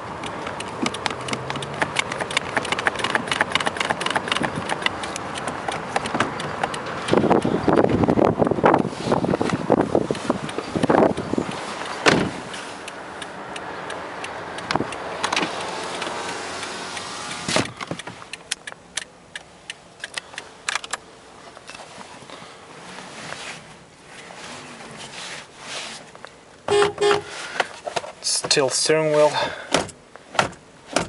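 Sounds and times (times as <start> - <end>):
car seat adjuster knocks: 12.0 - 12.4
rubbing noise: 22.8 - 26.1.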